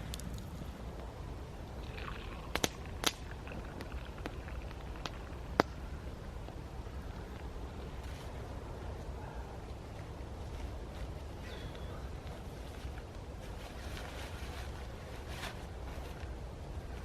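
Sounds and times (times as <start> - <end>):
campfire crackling and popping: 0.0 - 11.2
low outdoor rumble: 0.0 - 17.0.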